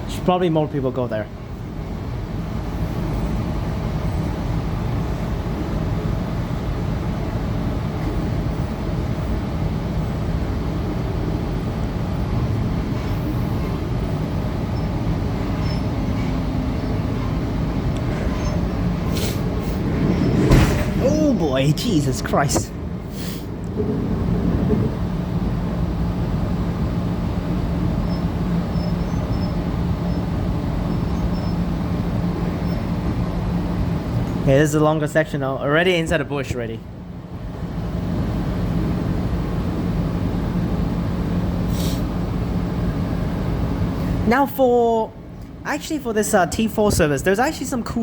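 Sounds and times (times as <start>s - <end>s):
constant low hum: 0.0s - 48.0s
train wheels rumbling on rails: 1.7s - 34.4s.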